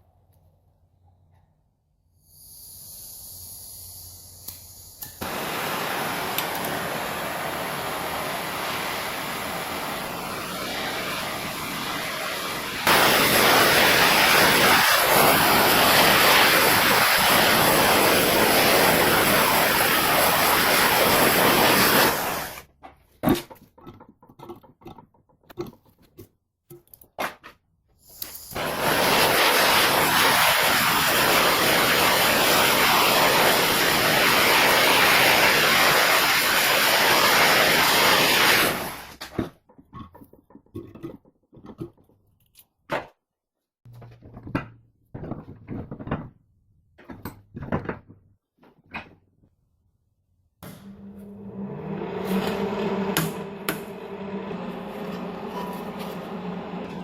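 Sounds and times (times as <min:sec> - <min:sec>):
workshop tool hissing: 0:02.1 - 0:22.7, 0:28.0 - 0:39.2, 0:52.0 - 0:57.0.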